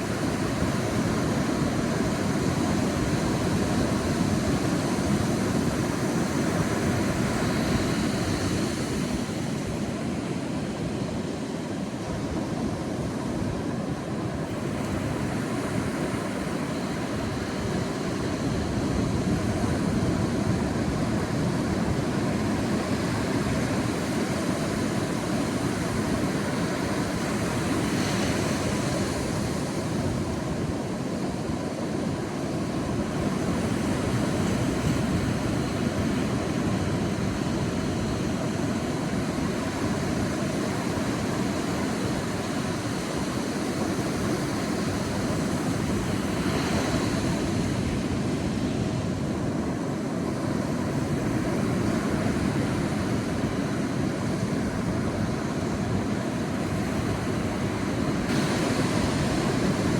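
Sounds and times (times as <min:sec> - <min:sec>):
sea waves washing on beach: 0:00.0 - 0:59.9.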